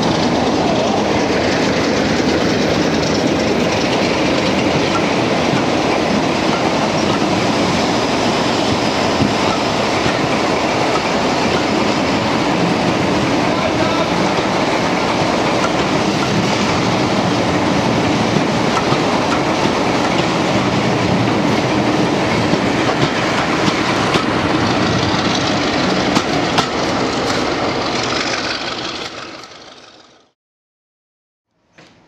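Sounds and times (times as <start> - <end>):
diesel train running past: 0.0 - 30.3
wheels clicking over rail joints: 0.9 - 7.7, 18.2 - 20.7, 22.4 - 30.3.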